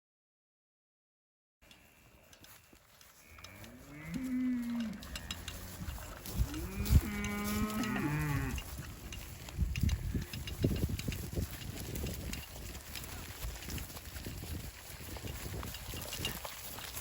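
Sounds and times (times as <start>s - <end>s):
cattle mooing: 3.2s - 8.6s.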